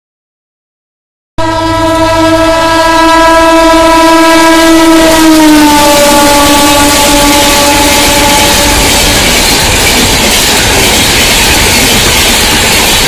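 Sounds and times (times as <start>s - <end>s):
locomotive horn: 1.4s - 9.3s
train rumbling on rails: 1.4s - 13.0s.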